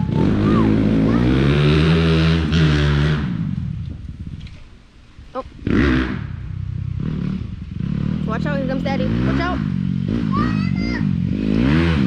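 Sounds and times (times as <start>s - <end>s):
dirt bike engine: 0.0s - 12.0s.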